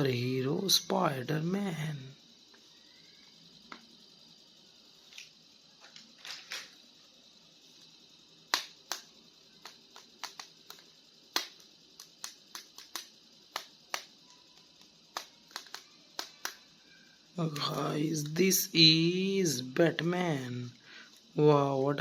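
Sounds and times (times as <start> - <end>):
plastic figures and packaging clicking: 5.1 - 6.8, 8.5 - 16.7.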